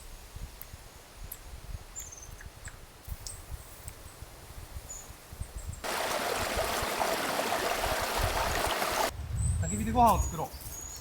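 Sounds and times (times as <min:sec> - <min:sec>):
stream water flowing: 0:05.8 - 0:09.1.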